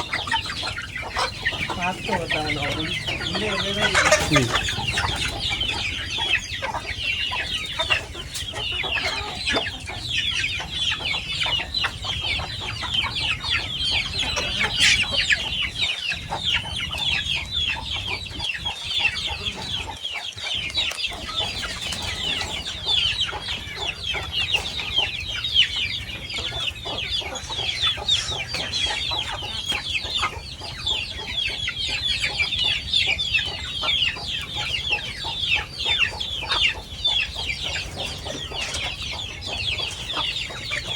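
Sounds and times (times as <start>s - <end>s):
chickens cheeping: 0.0s - 40.9s.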